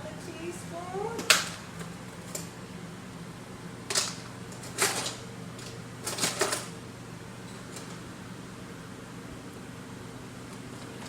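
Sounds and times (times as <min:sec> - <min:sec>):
steady low hum: 0:00.0 - 0:11.0
kitchen utensils clattering: 0:03.9 - 0:05.2, 0:06.0 - 0:06.7.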